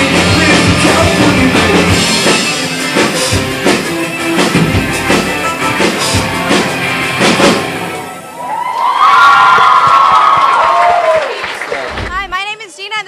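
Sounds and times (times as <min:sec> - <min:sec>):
drum hits and cymbal crashes: 0:00.0 - 0:07.9
held guitar chords: 0:00.0 - 0:08.4
live rock band playing: 0:00.0 - 0:08.4.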